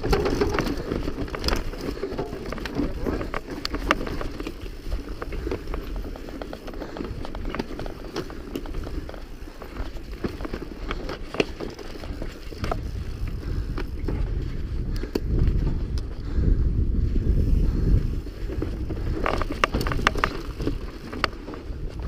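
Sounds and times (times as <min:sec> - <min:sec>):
bike rattling clicks: 0:00.0 - 0:22.0
bike tyre rumble: 0:00.0 - 0:22.0
wind on microphone: 0:12.0 - 0:22.0.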